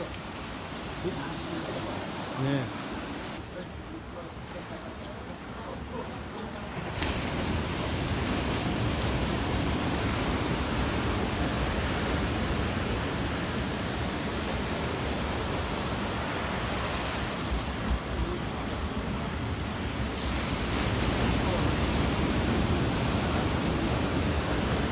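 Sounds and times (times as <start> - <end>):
ocean surf washing in: 0.0 - 5.0, 6.5 - 24.9
wind on microphone: 7.0 - 24.9.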